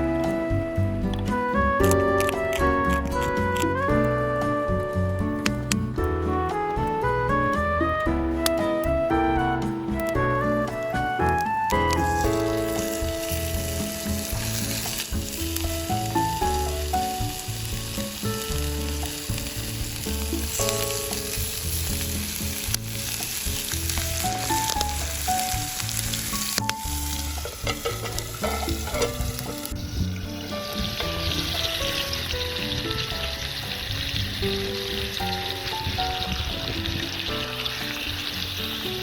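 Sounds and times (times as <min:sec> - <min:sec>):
background music: 0:00.0 - 0:39.0
steak sizzling in a skillet: 0:09.6 - 0:39.0.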